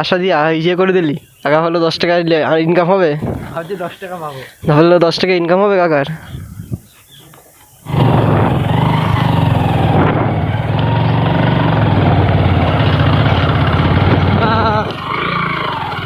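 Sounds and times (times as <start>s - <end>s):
motorcycle engine running: 7.9s - 16.0s.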